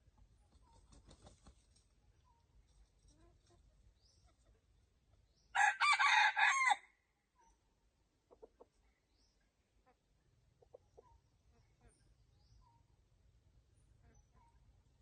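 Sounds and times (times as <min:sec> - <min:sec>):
rooster crowing: 0:05.6 - 0:06.8.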